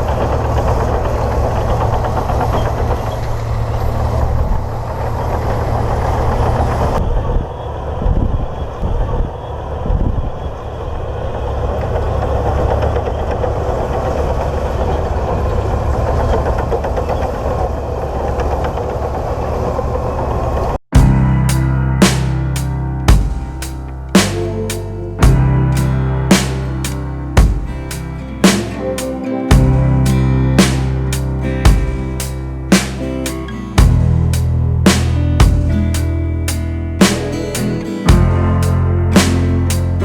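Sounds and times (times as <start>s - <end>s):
bulldozer diesel engine running: 0.0s - 7.0s, 21.0s - 28.8s, 29.5s - 40.0s
drum-led music: 21.0s - 40.0s.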